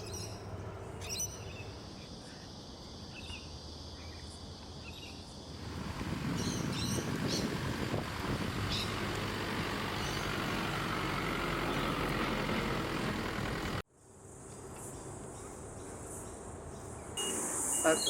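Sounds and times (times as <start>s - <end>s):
heavy vehicle engine rumbling: 5.5s - 13.8s.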